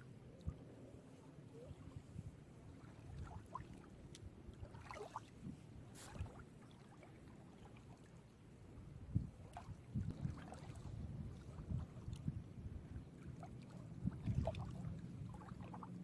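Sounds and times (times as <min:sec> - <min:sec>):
small waves lapping at shore: 0:00.3 - 0:16.0.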